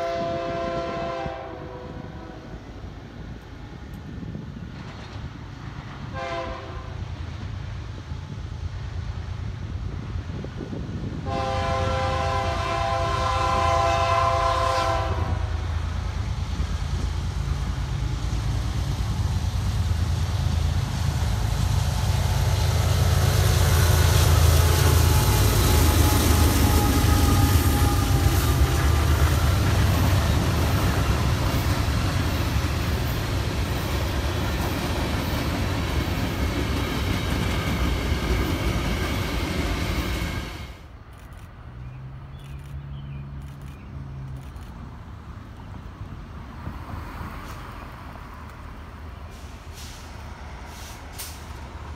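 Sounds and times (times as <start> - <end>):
train horn: 0.0 - 2.8, 6.1 - 7.1, 11.2 - 15.6, 23.7 - 31.0
diesel locomotive rumbling past: 0.0 - 51.9
railcars clattering over rail joints: 4.6 - 6.1, 22.2 - 40.4.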